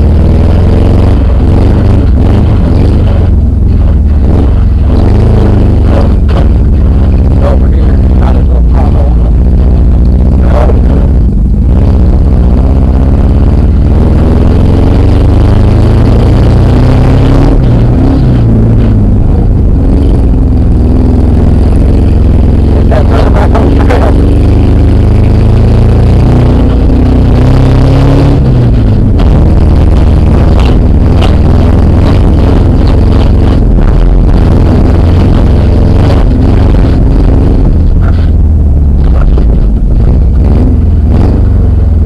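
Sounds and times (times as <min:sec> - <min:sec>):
car engine revving: 0:00.0 - 0:42.0.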